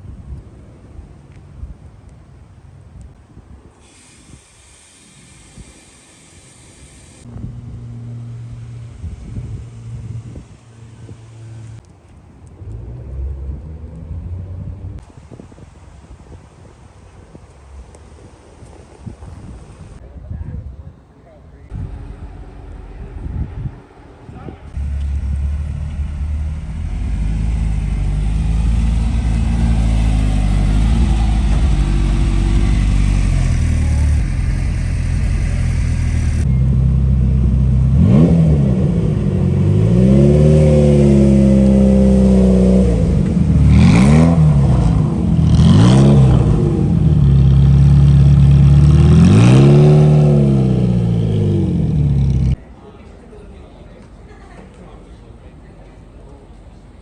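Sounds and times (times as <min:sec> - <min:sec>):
car engine idling and revving: 0:06.3 - 0:15.0, 0:21.8 - 0:52.6.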